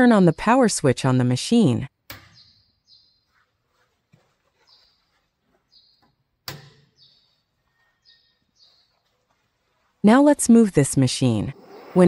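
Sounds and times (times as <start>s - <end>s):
small birds chirping: 2.3s - 9.5s.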